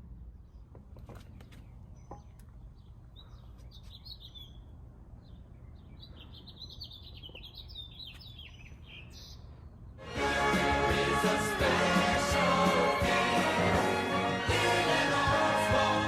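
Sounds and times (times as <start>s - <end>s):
songbirds chirping and trilling: 0.0s - 10.1s.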